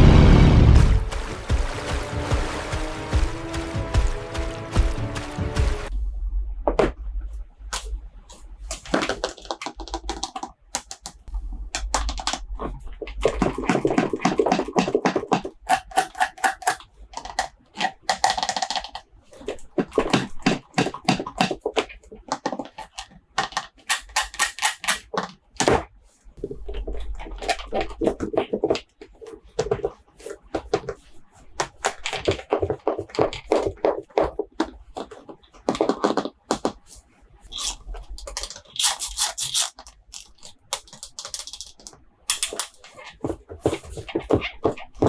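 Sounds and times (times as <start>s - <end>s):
hard plastic clicks and taps: 8.9s - 12.4s, 20.1s - 25.8s, 39.8s - 42.8s
packaging rustling: 37.5s - 45.0s.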